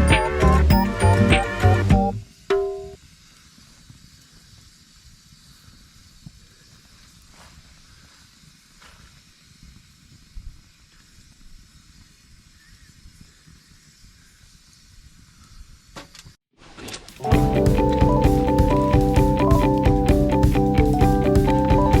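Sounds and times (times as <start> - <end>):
music: 0.0 - 3.0, 17.2 - 22.0
wood fire hissing and crackling: 3.0 - 16.0, 17.1 - 22.0.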